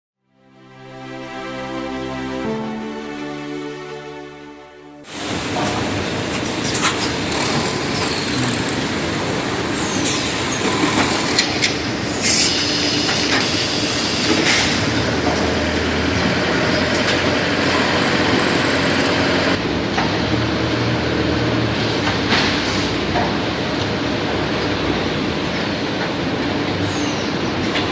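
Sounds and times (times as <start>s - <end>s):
machinery clatter: 5.2s - 13.5s.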